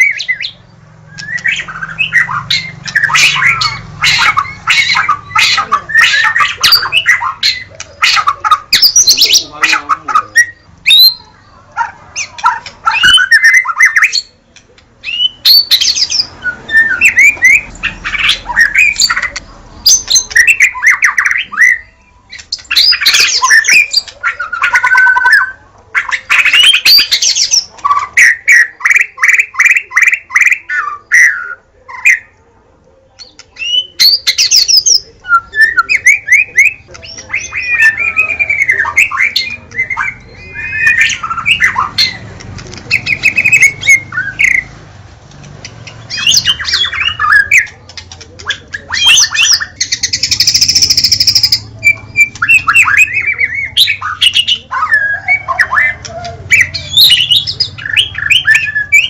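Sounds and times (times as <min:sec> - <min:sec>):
songbird singing varied song: 0:00.0 - 0:11.6, 0:33.0 - 0:59.0.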